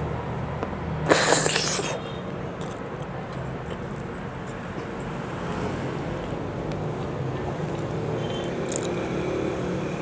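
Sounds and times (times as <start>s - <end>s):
chewing egg: 1.1s - 5.4s, 6.1s - 9.6s.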